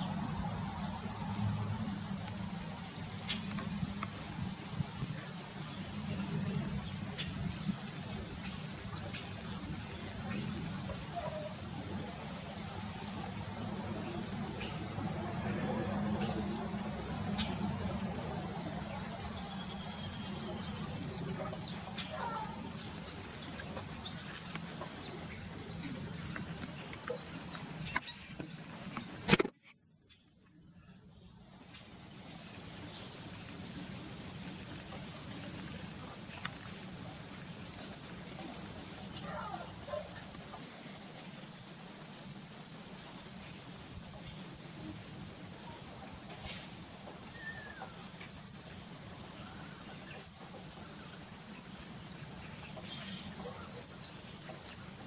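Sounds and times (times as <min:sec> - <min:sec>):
small birds chirping: 0:00.0 - 0:29.4, 0:30.1 - 0:55.0
crickets trilling: 0:00.0 - 0:29.5, 0:30.8 - 0:55.0
loud sharp click: 0:29.2 - 0:29.6.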